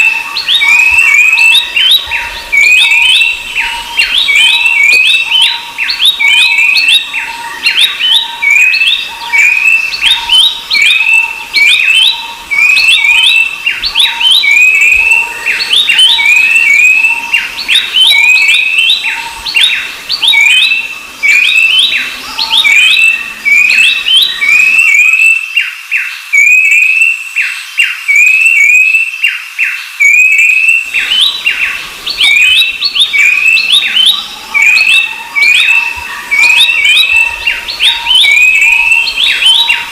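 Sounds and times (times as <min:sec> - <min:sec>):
birds calling in chorus: 0:00.0 - 0:39.9.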